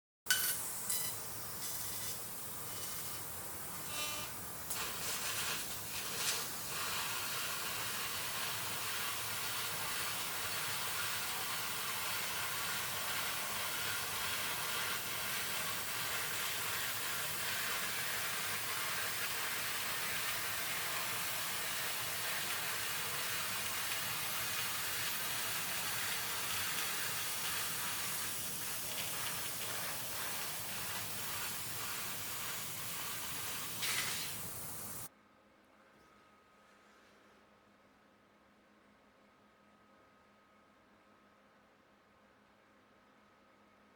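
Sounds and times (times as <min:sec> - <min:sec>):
laser cutter gas jet hissing: 0:00.3 - 0:35.1.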